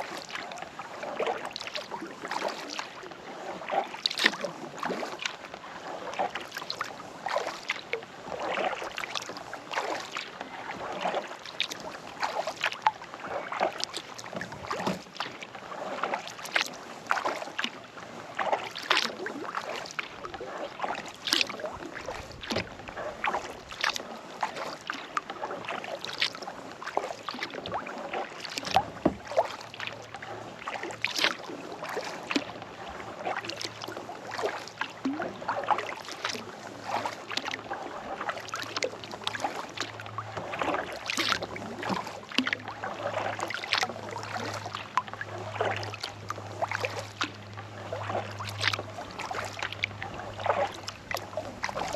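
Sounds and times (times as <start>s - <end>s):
water dripping from paddle: 0.0s - 3.1s, 3.7s - 17.8s, 18.4s - 51.9s
kayak paddle splashing water: 0.0s - 51.9s.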